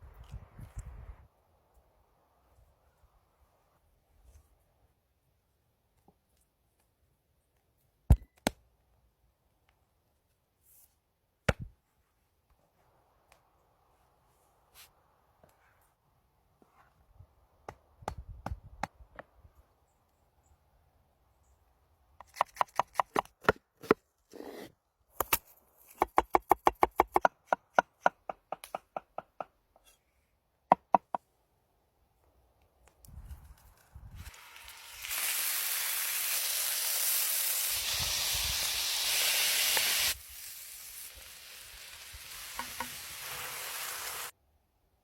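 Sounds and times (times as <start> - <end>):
food sizzling in a hot pan: 34.3 - 44.3.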